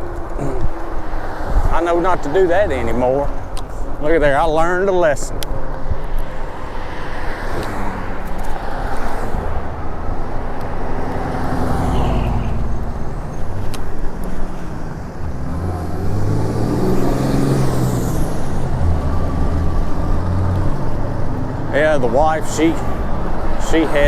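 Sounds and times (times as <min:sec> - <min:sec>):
road traffic: 0:00.0 - 0:24.0
vehicle engine humming: 0:00.0 - 0:24.0.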